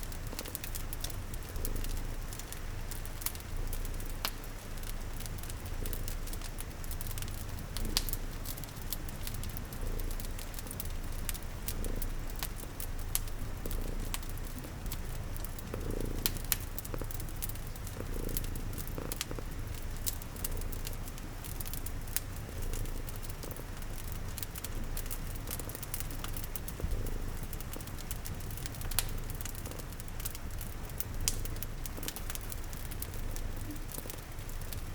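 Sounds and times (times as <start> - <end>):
cat purring: 0.0 - 34.9
rain pattering: 0.0 - 34.9
wood fire crackling: 0.0 - 34.9.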